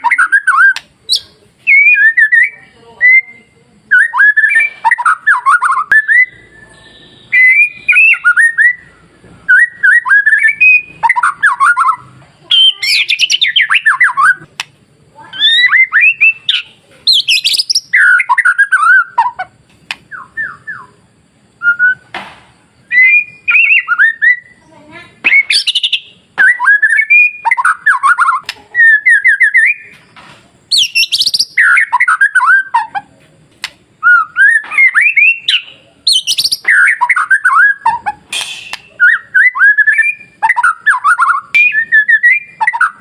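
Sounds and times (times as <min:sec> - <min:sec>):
shama singing whistled phrases: 0:00.0 - 0:14.5, 0:15.2 - 0:19.5, 0:20.1 - 0:22.1, 0:22.8 - 0:30.0, 0:30.7 - 0:33.0, 0:34.0 - 0:43.0.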